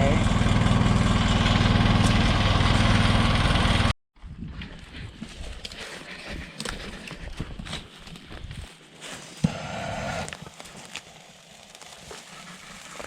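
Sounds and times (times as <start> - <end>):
diesel engine running: 0.0 - 3.9.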